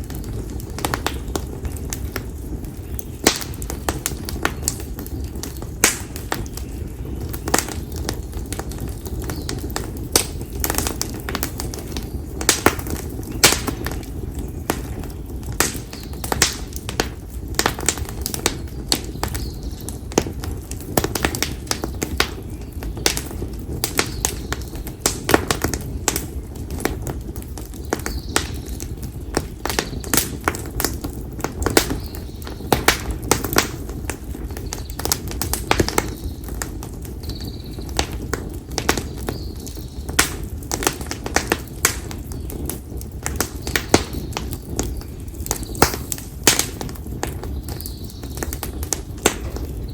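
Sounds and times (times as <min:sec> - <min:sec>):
campfire crackling and popping: 0:00.0 - 0:49.9
low fire rumble: 0:00.0 - 0:49.9.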